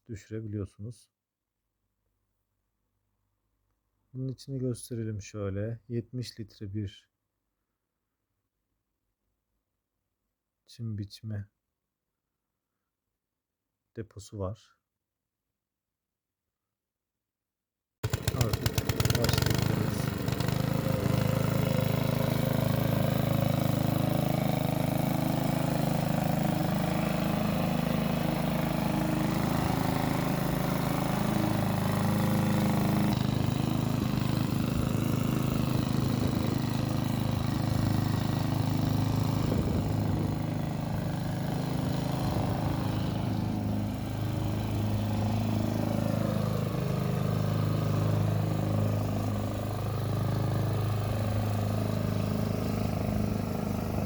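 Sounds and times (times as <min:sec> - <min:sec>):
lawn mower engine running: 0:18.0 - 0:54.0.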